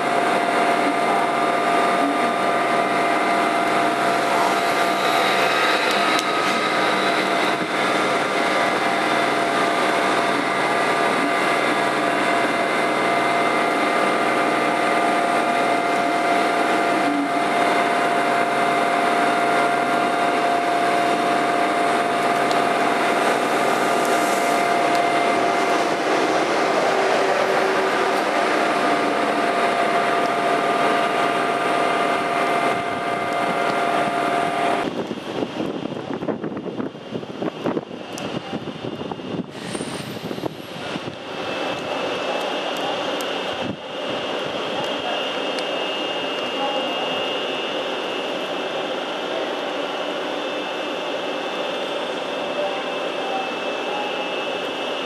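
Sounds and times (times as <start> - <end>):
electric train hum: 0.0 - 55.0
train running noise: 0.0 - 55.0.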